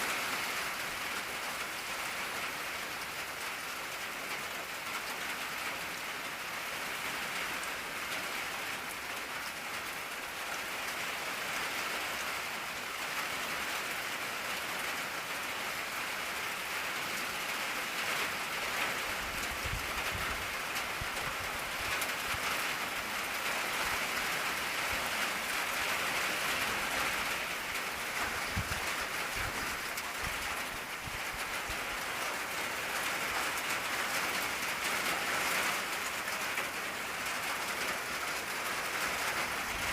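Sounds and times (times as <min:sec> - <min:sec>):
rain on a tin roof: 0:00.0 - 0:39.9.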